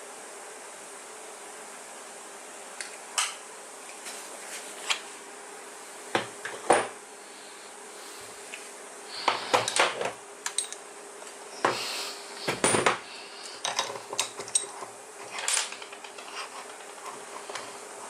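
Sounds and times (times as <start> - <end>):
faint steady hum: 0.0 - 18.0
metal tools clinking on a work surface: 10.5 - 10.8.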